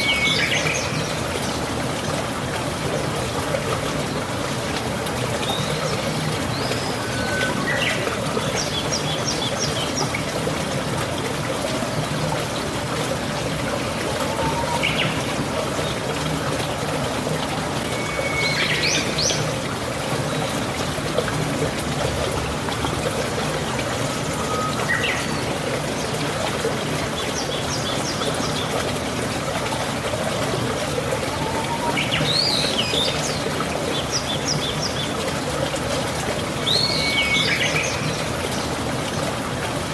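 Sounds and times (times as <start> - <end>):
rain falling: 0.0 - 39.9
water trickling: 0.0 - 39.9
bird chirping and trilling: 17.9 - 19.5.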